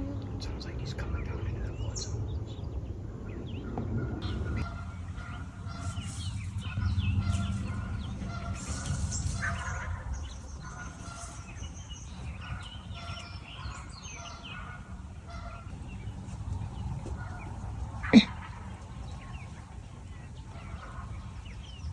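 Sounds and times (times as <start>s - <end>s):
low wind rumble: 0.0s - 21.9s
songbirds chirping: 0.0s - 21.9s
larger bird calling: 4.2s - 15.7s.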